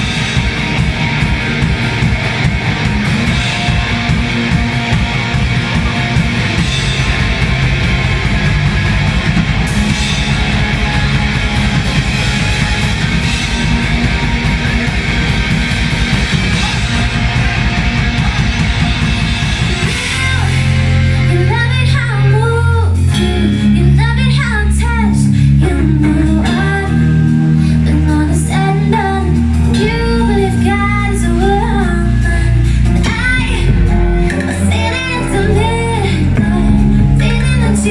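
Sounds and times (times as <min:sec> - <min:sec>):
held bass notes: 0:00.0 - 0:37.9
live rock band playing: 0:00.0 - 0:37.9
person singing: 0:16.3 - 0:37.9.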